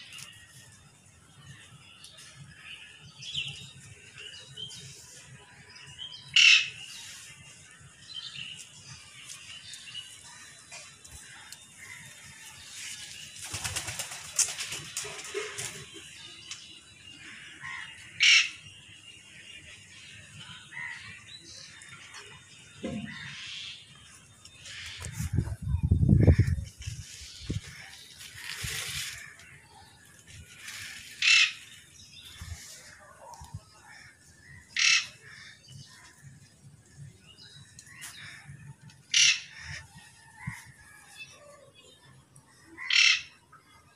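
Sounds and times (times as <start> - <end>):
harsh bird squawk: 31.2 - 31.6, 34.8 - 35.2, 39.1 - 39.8, 42.8 - 43.3.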